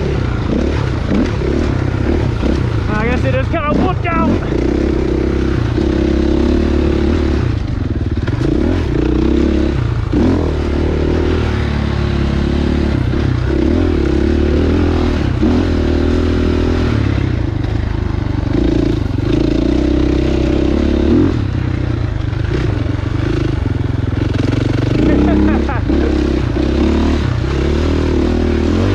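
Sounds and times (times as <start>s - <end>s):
dirt bike engine revving: 0.0s - 28.9s.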